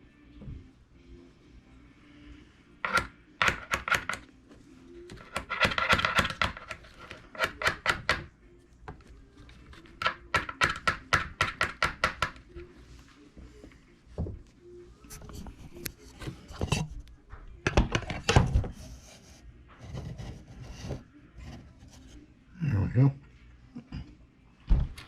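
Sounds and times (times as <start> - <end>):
rapid sharp clicking of hand tools: 5.2 - 8.3.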